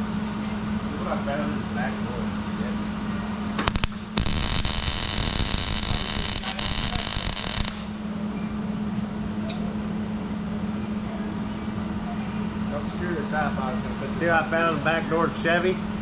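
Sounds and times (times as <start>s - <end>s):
steady low hum: 0.0s - 16.0s
welder arc frying hiss: 3.6s - 8.0s.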